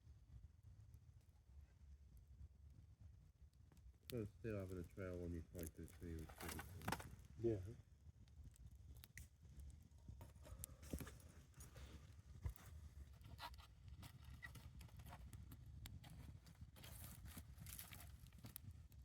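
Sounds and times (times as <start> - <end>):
faint clicks and ticks: 8.2 - 19.0.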